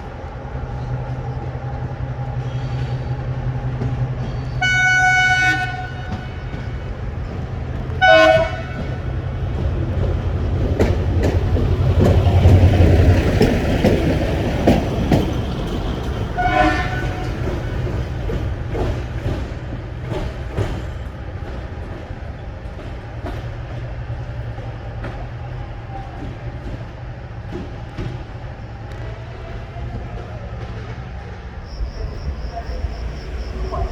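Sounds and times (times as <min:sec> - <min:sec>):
train rumble: 0:00.0 - 0:33.9
train horn toots: 0:04.6 - 0:06.8, 0:08.0 - 0:09.1, 0:16.4 - 0:17.8.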